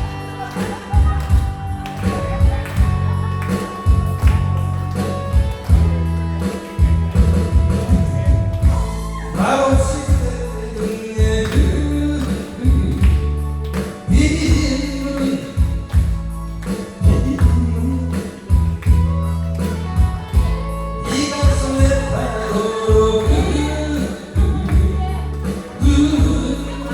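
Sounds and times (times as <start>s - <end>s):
music with heavy pulsing bass beat: 0.0s - 26.9s
person singing through a microphone: 7.5s - 26.9s.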